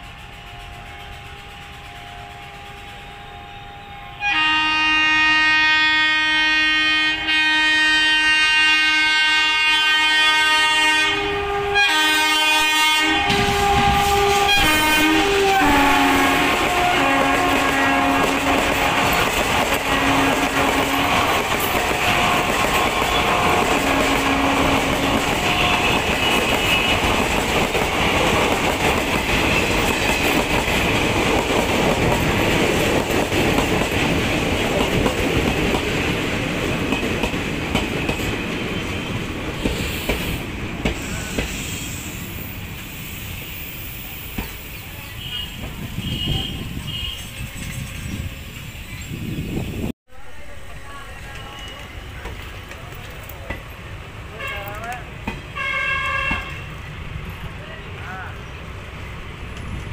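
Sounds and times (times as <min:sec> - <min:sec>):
locomotive horn blast: 0:00.2 - 0:27.4, 0:45.1 - 0:47.5, 0:54.3 - 0:56.8
train coaches clattering over rails: 0:11.2 - 0:49.9, 0:50.5 - 0:59.9.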